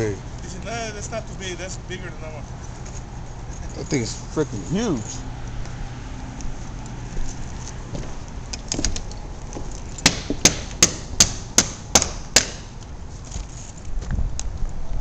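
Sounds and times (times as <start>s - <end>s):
hammer strikes: 10.0s - 12.8s.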